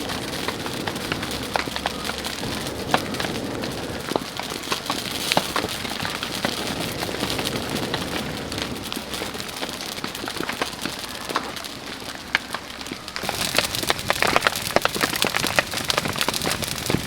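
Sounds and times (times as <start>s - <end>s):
campfire crackling and popping: 0.0s - 17.0s
steady rain falling: 0.0s - 17.0s.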